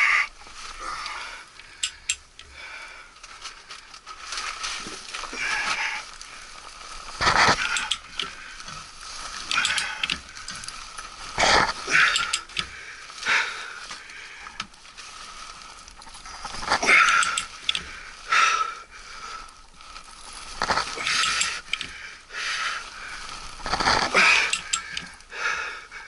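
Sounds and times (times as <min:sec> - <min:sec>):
hand tools on metal: 0:07.2 - 0:10.8, 0:11.4 - 0:12.8, 0:16.5 - 0:18.0, 0:20.6 - 0:22.0, 0:23.7 - 0:25.1.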